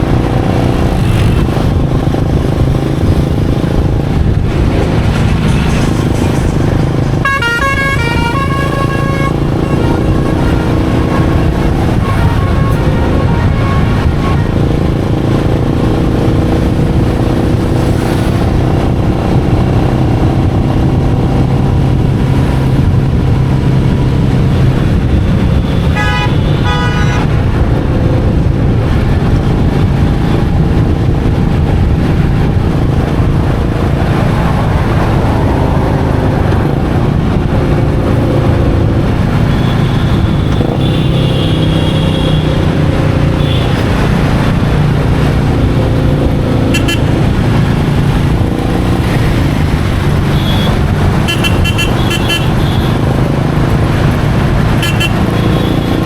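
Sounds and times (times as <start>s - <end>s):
motorcycle engine running: 0.0s - 26.7s.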